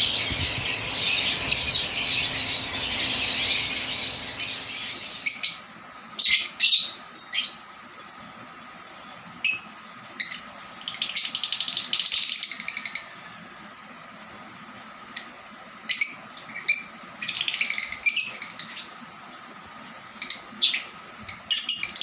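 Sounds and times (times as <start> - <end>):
rapid chirps: 0.0 - 5.5
lovebird squawks: 0.0 - 5.6
lovebirds shrill chatter: 0.0 - 7.0.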